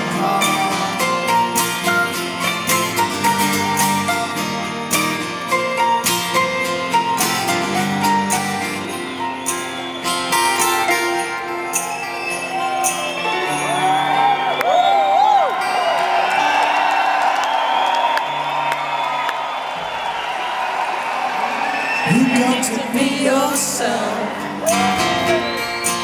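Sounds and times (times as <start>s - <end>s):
live rock band playing: 0.0s - 14.6s, 22.1s - 26.0s
crowd whooping: 0.1s - 26.0s.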